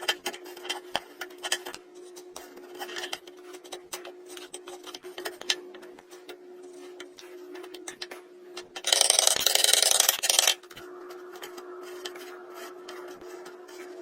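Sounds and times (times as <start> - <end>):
steady low hum: 0.0 - 14.0
light scratching: 8.8 - 14.0.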